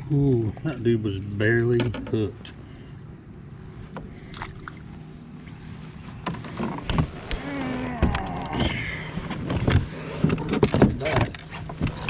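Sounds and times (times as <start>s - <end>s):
steady low hum: 0.0s - 12.0s
knocks and clatter on plastic kayak: 9.3s - 12.0s.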